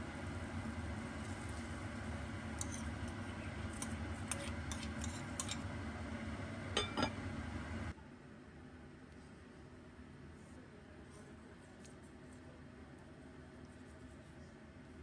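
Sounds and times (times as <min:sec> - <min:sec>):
kitchenware clicking and tapping: 0:06.8 - 0:07.2.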